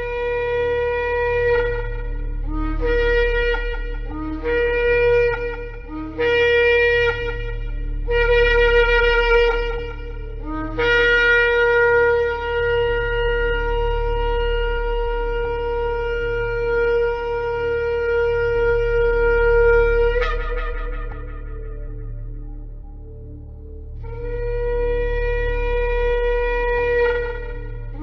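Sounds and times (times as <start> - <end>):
ram's horn blowing: 0.0 - 28.0.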